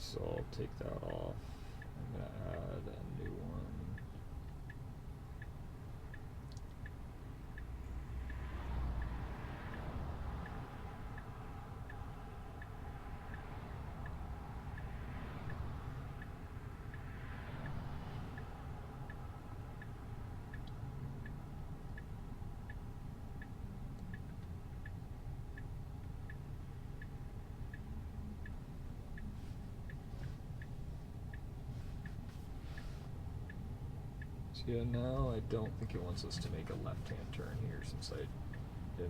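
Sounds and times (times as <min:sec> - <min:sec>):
low car hum: 0:00.0 - 0:39.0
turn signal ticking: 0:00.0 - 0:39.0.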